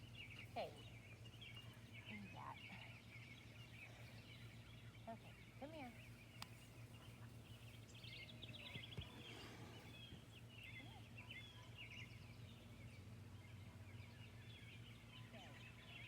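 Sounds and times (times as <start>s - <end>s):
faint bird chirping: 0.0s - 16.0s
steady low hum: 0.0s - 16.0s.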